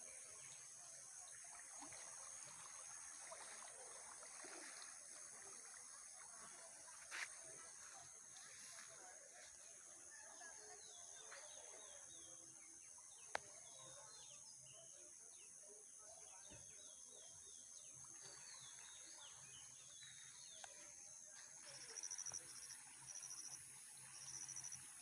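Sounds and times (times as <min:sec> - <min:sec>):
high insect hum: 0:17.5 - 0:25.0
rapid pulsing insect chirp: 0:20.4 - 0:25.0.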